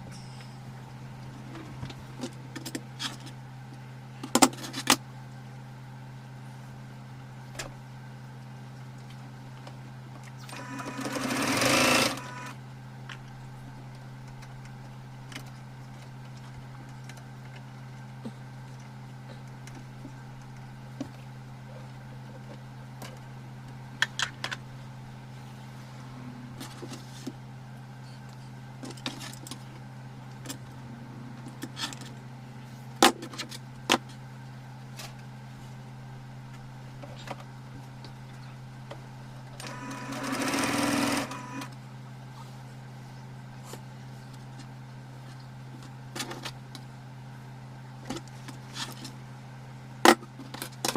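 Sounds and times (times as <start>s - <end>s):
steady low hum: 0.0s - 50.9s
sewing machine running: 10.5s - 12.6s, 39.6s - 41.7s.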